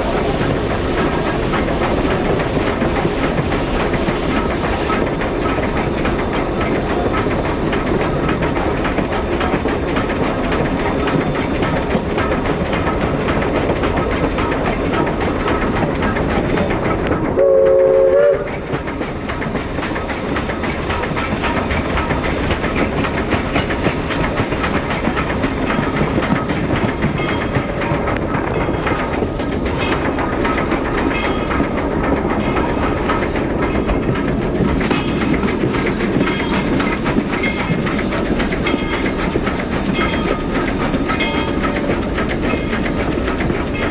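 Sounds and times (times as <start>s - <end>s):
train cars rumbling on rails: 0.0s - 43.9s
steam whistle blast: 17.4s - 18.5s.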